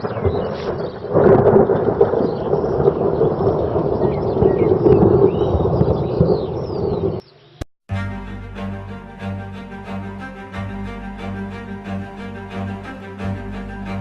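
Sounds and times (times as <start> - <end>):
thunder rumbling: 0.0 - 7.2.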